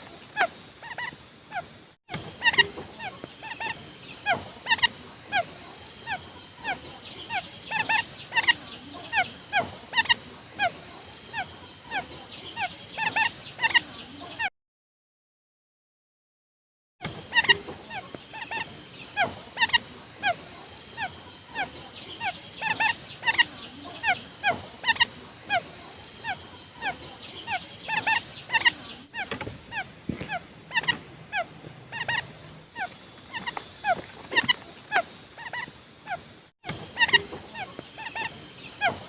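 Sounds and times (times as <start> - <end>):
steady high hiss: 0.0 - 14.0, 17.1 - 39.0
quail call notes: 22.2 - 39.0.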